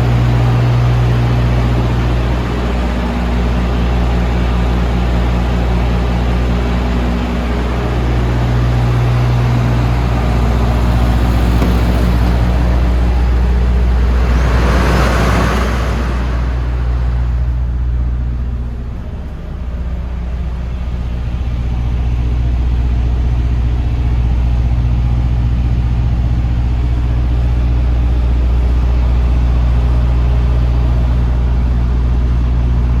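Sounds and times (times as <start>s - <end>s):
truck diesel engine idling: 0.0s - 33.0s
turbo rushing swell: 10.4s - 21.2s.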